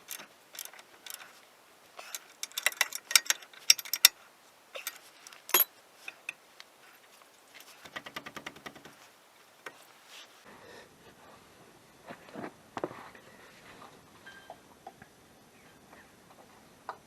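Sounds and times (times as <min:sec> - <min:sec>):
ratchet wrench clicking: 0:00.0 - 0:01.2, 0:02.1 - 0:04.1.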